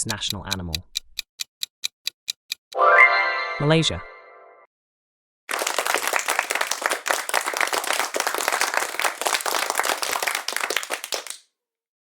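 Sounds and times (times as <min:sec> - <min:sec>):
crowd applause: 0:05.5 - 0:11.4.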